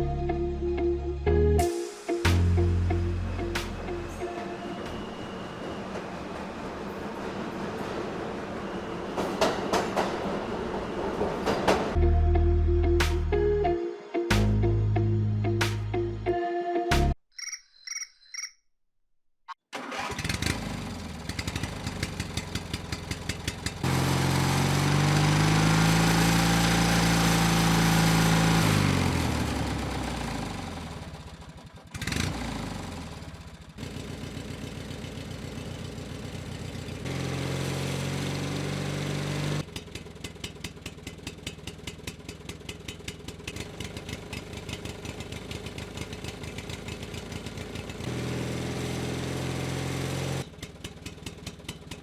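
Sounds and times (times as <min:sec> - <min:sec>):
small engine running: 0:19.8 - 0:52.0.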